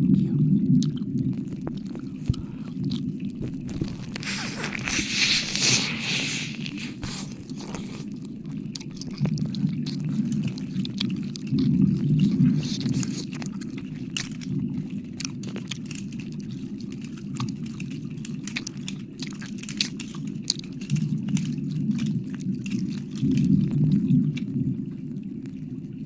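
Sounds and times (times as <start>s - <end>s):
steady low rumble: 0.0s - 15.4s
wet licking clicks and smacks: 0.8s - 23.7s.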